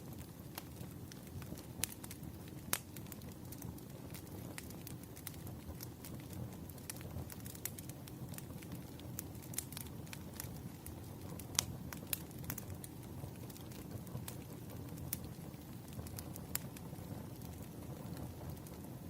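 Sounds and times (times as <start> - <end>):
firewood crackling and popping: 0.0 - 19.0
low rumble of flames: 0.0 - 19.0.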